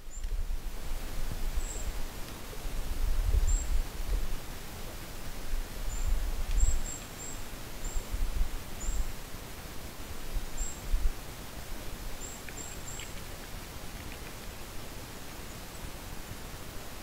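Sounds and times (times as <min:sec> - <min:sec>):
small bird chirping: 0:12.2 - 0:14.4.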